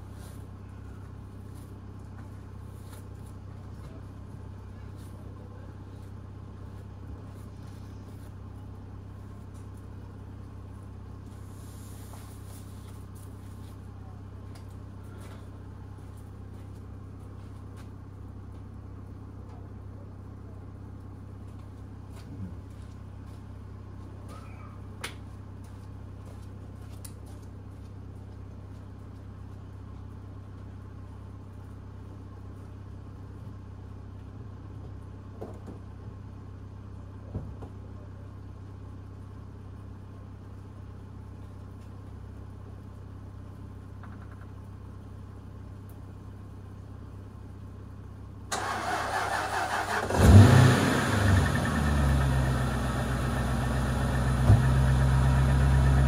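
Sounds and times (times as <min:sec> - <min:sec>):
car engine idling: 0:27.5 - 0:56.0.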